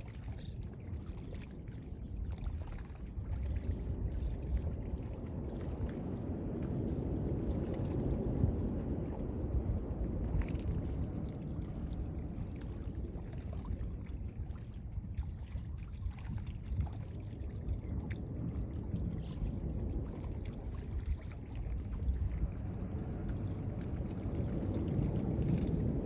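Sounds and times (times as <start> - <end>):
waves washing on beach: 16.5 - 26.0.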